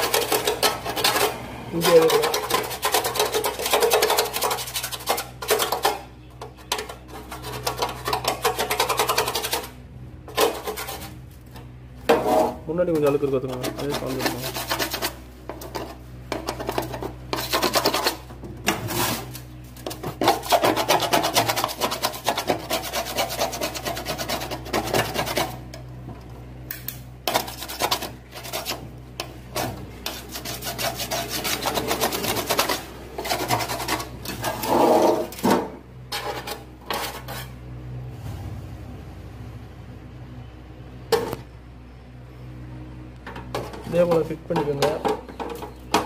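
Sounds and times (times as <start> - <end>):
scraping grime off metal: 0.0 - 25.8, 27.2 - 37.6.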